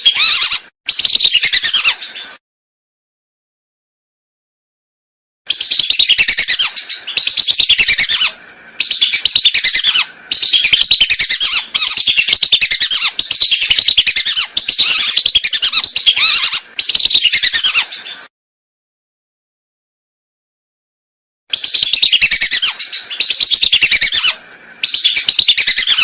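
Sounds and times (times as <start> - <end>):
recorded whistling duck calls: 5.5 - 17.9, 21.5 - 26.0.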